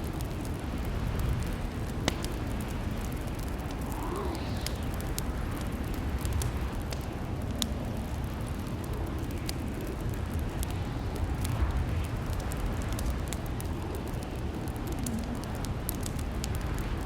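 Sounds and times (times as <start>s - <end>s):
fire crackling with sharp pops: 0.0s - 17.0s
low rumble of burning: 0.0s - 17.0s.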